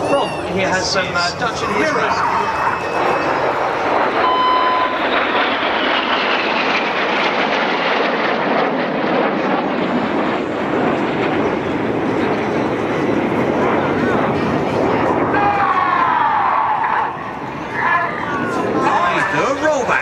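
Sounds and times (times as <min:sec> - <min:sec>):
jets flying past: 0:00.0 - 0:20.0.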